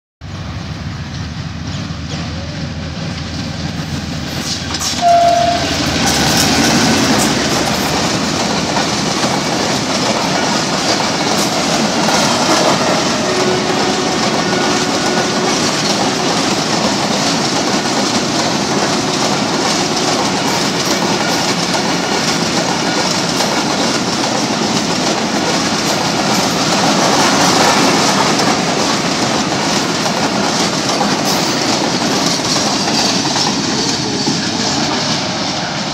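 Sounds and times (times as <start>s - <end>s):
diesel locomotive rumble: 0.2s - 35.9s
wheels clacking over rail joints: 1.1s - 35.9s
train horn blast: 5.0s - 7.1s, 12.4s - 16.7s.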